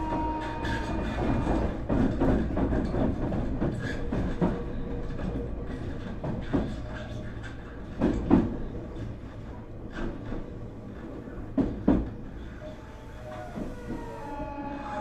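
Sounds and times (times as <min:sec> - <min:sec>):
train running rumble: 0:00.0 - 0:15.0
train wheels clacking over rail joints: 0:00.0 - 0:15.0
train motor whine: 0:12.4 - 0:15.0.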